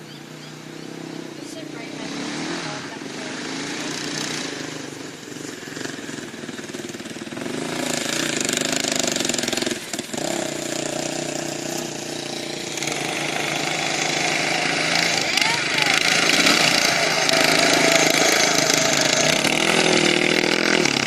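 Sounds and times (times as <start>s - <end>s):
off-road buggy engine running: 0.0s - 21.0s.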